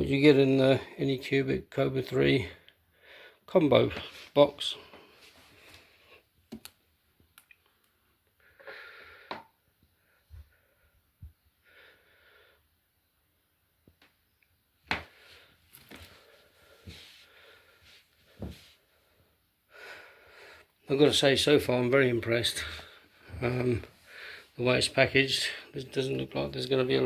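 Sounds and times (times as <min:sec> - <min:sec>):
soft packaging rustles: 0:15.1 - 0:17.3.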